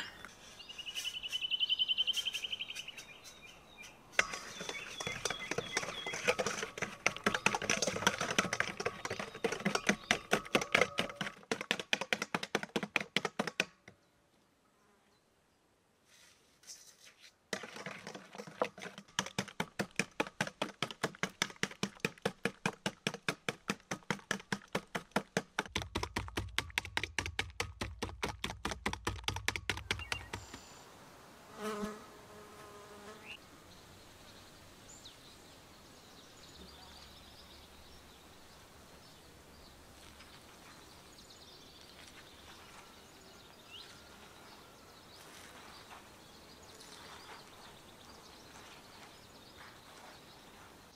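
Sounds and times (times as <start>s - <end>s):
faint bird chirps: 0.0s - 6.4s, 33.2s - 50.7s
food beaten in a bowl: 4.2s - 13.6s.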